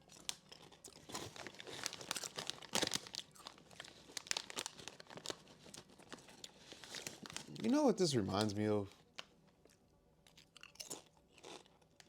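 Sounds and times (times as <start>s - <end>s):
chip bag crinkling: 0.0s - 9.3s.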